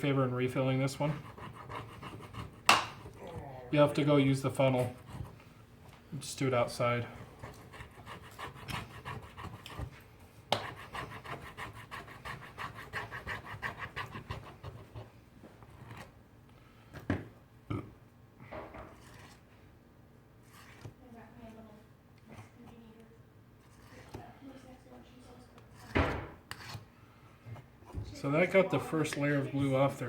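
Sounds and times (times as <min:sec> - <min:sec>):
hand tool scraping adhesive: 0:07.4 - 0:09.9.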